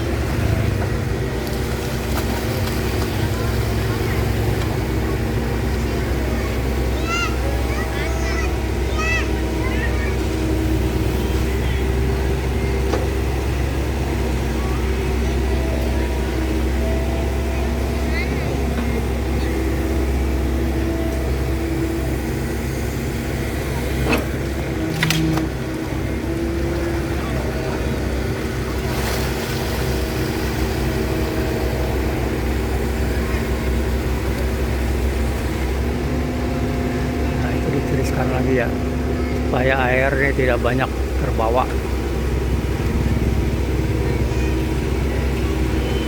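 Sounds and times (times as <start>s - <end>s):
excavator diesel engine running: 0.0s - 46.0s.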